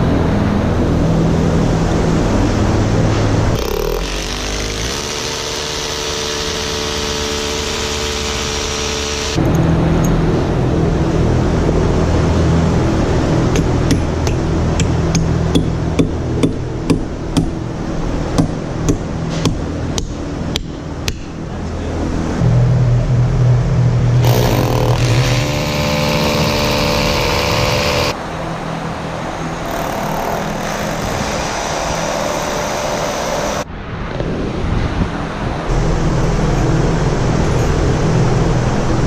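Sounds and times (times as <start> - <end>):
hammer drill drilling into concrete: 3.6 - 9.4, 24.2 - 28.2, 29.7 - 33.6
hammer blows driving nails: 24.2 - 28.2.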